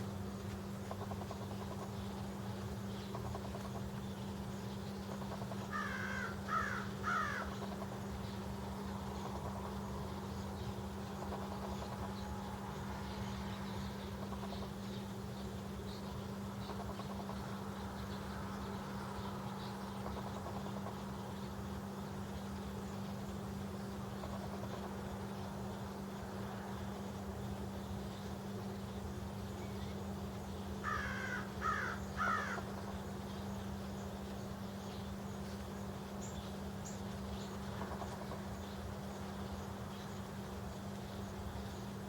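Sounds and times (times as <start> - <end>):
birds chirping: 0.0 - 42.0
steady low hum: 0.0 - 42.0
crow cawing: 5.7 - 7.6, 30.8 - 32.7.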